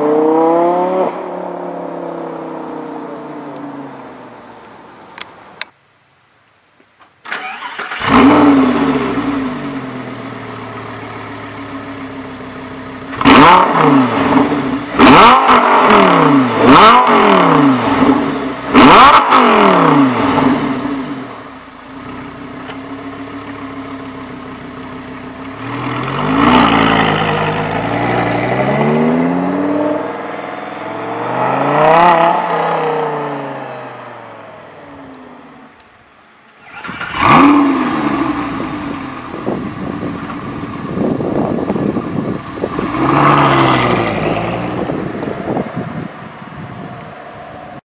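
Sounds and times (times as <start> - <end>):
car driving away: 0.0 - 5.7, 7.3 - 35.8, 36.6 - 47.7
car engine starting and idling: 0.0 - 5.7, 7.2 - 47.0
engine revving in sharp blips: 13.1 - 21.2, 36.6 - 39.6.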